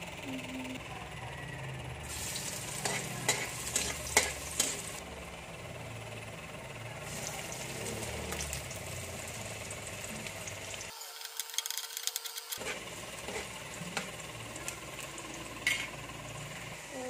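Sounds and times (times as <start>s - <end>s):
garlic sizzling in hot oil: 2.0s - 5.0s, 7.0s - 11.6s
metal spatula scraping a pan: 2.2s - 4.9s, 12.6s - 14.1s, 15.6s - 16.0s.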